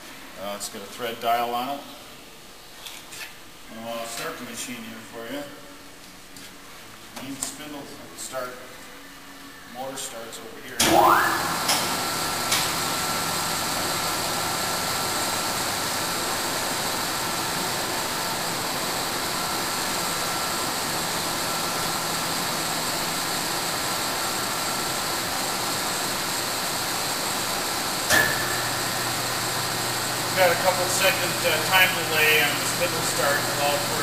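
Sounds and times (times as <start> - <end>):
lathe motor humming with whine: 10.9 - 34.0.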